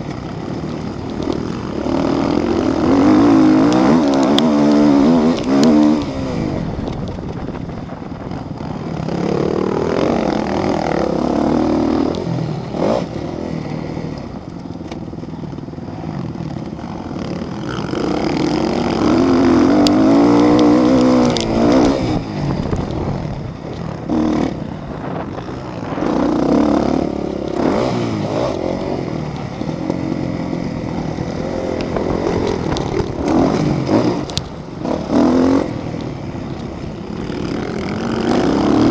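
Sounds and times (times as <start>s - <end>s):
motocross motorcycles revving: 0.0s - 38.9s.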